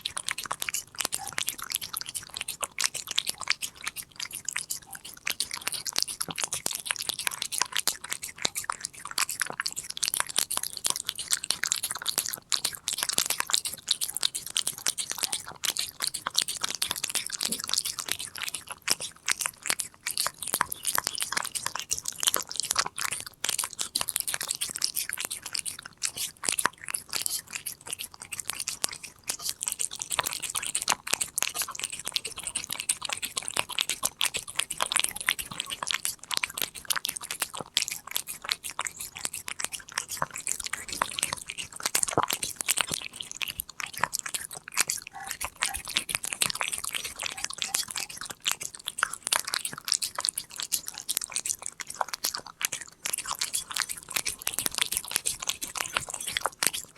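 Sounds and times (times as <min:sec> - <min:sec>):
cat crunching a treat: 0:00.0 - 0:56.9.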